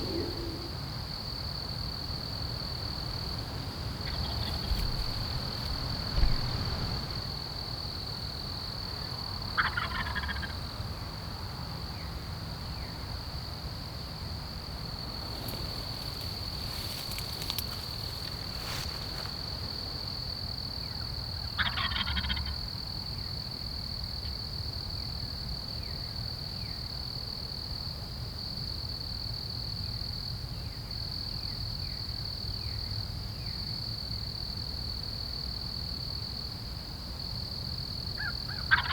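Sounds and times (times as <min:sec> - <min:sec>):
turkey gobbling: 0:00.0 - 0:00.7, 0:09.6 - 0:10.5, 0:21.6 - 0:22.6, 0:38.6 - 0:38.9.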